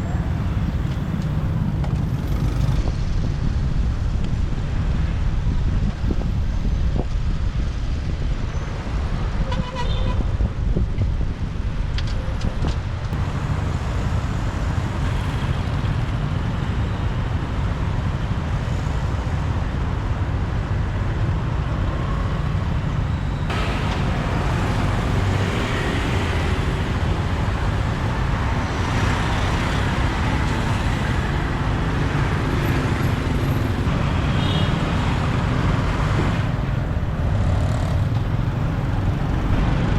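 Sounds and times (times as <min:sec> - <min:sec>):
wind on microphone: 0:00.0 - 0:17.0
street traffic: 0:00.0 - 0:39.9.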